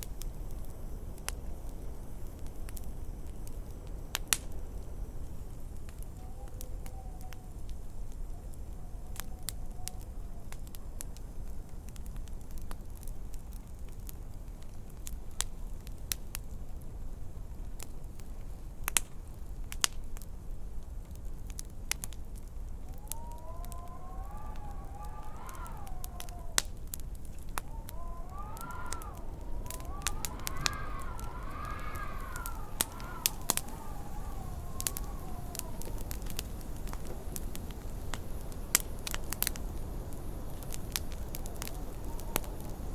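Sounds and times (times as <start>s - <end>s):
wood fire crackling: 0.0s - 42.9s
high wavering howl: 22.9s - 37.4s.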